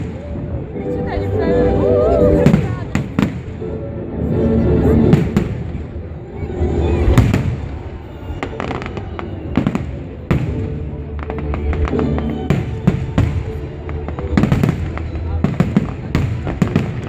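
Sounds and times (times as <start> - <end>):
fireworks bursting: 2.0 - 3.7, 5.0 - 17.0.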